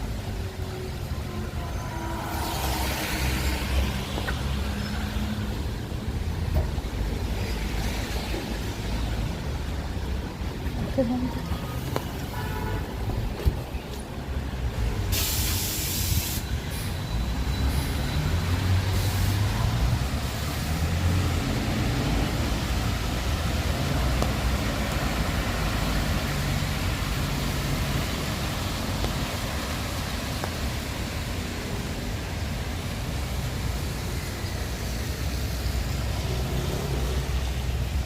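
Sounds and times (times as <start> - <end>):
wet road and rain noise: 0.0 - 38.0
loud hiss: 15.1 - 17.0.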